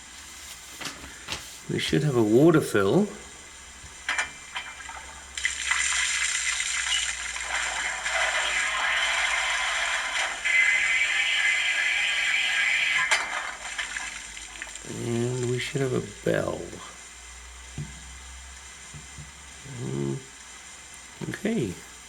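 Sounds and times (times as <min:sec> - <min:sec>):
water gushing through small speaker: 0:04.8 - 0:17.0.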